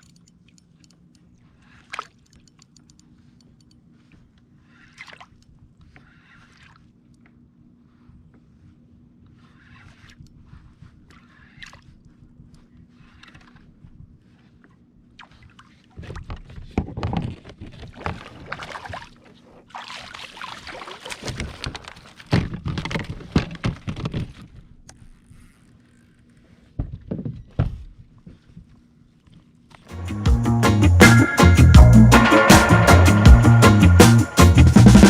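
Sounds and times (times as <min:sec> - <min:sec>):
water sloshing and splashing: 0:00.0 - 0:08.2, 0:09.2 - 0:24.5.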